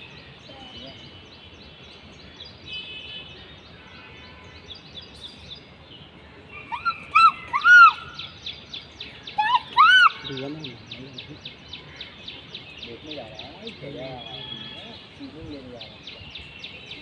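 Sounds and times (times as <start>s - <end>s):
birds chirping chorus: 0.0s - 17.0s
bird loud arched calls: 6.5s - 12.8s.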